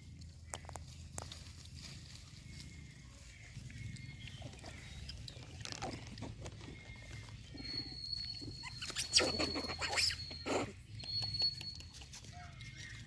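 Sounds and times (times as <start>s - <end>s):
monkeys calling and grunting: 3.2s - 13.0s.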